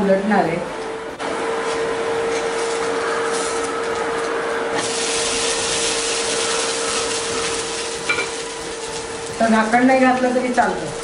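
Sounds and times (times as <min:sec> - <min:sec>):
steady hum: 0:00.0 - 0:11.0
flatbread sizzling in a pan: 0:04.8 - 0:11.0.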